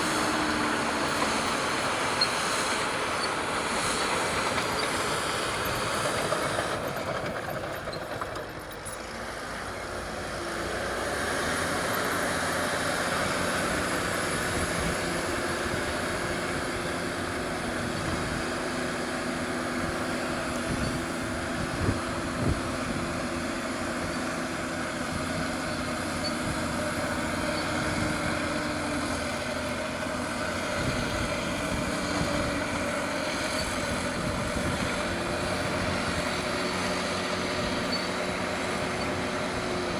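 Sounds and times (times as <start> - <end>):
metallic rattle of steel tracks: 0.0 - 9.2
bulldozer diesel engine running: 0.0 - 39.9.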